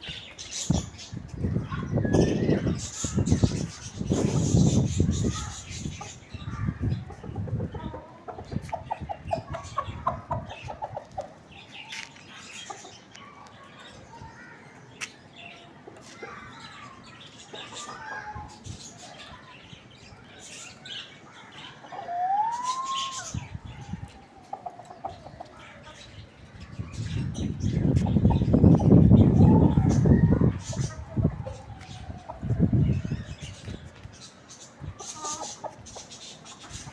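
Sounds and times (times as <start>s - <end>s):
hen clucking: 6.9s - 11.4s, 24.4s - 25.9s, 35.0s - 36.9s.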